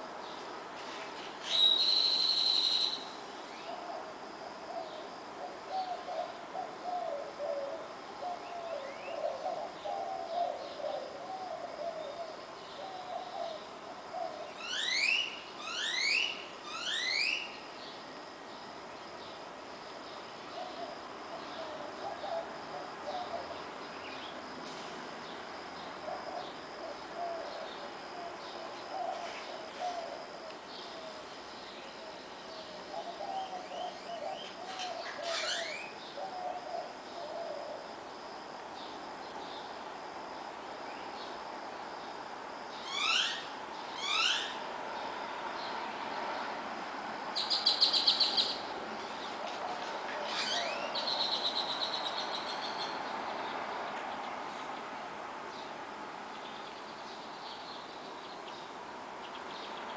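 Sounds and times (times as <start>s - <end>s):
crickets chirring: 0.0s - 59.9s
wild birds singing: 0.0s - 59.9s
distant traffic: 38.5s - 59.9s.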